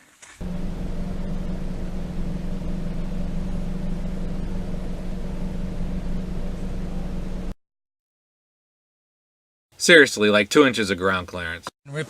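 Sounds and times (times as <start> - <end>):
car engine and road noise: 0.4 - 7.6.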